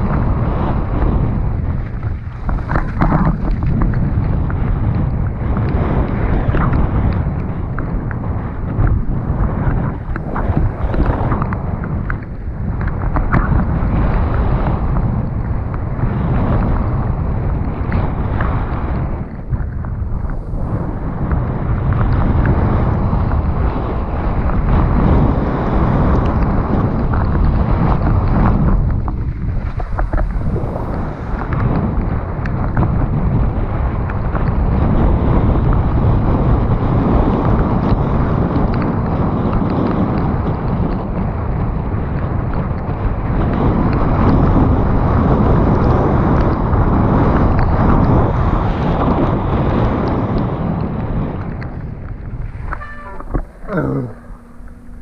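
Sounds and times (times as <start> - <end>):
bike rattling over bumps: 0.0 - 55.0
wind buffeting microphone: 0.0 - 55.0
tyres rumbling on trail: 16.2 - 38.5.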